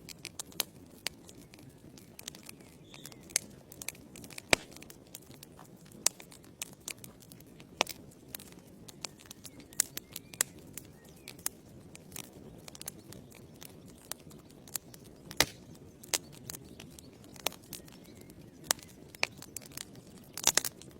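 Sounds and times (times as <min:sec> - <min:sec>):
wood fire crackling: 0:00.0 - 0:20.9
flame rushing: 0:04.4 - 0:04.8, 0:15.4 - 0:15.6.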